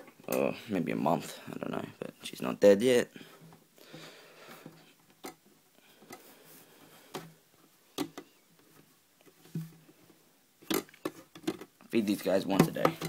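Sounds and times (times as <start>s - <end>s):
light handling clicks and knocks: 10.6s - 13.0s.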